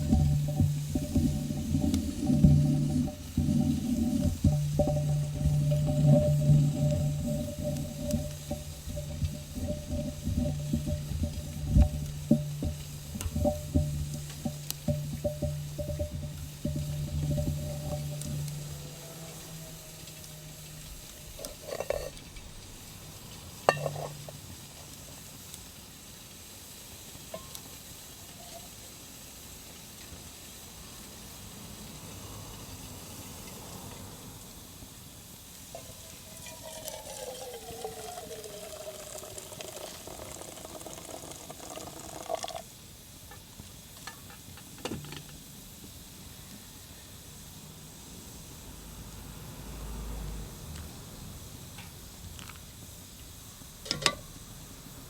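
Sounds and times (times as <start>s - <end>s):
utensils knocking: 0.0s - 22.8s, 23.7s - 24.9s, 53.9s - 54.3s
hot water pouring: 0.0s - 28.7s, 35.5s - 43.4s, 53.8s - 54.9s
steady soft hiss: 0.0s - 30.9s.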